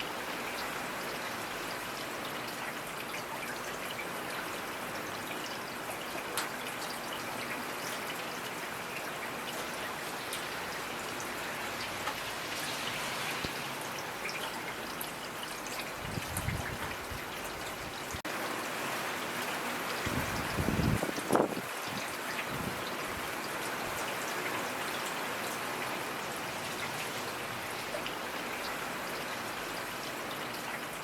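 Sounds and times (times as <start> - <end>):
rain hissing: 10.4 - 14.8.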